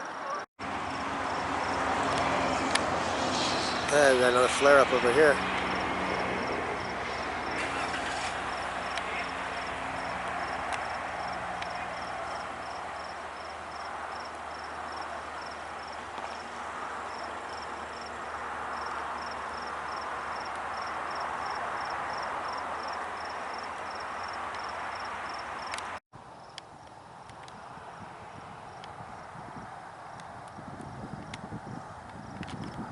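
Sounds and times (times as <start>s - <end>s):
steady rushing noise: 0.7s - 22.5s
insect chirping: 5.6s - 7.6s, 8.5s - 16.4s, 17.1s - 25.8s.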